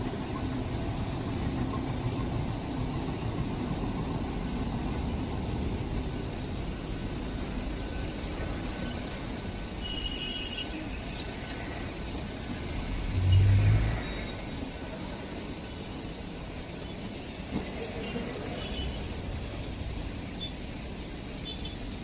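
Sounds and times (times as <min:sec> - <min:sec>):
train rumbling: 0:00.0 - 0:09.9, 0:10.6 - 0:22.0.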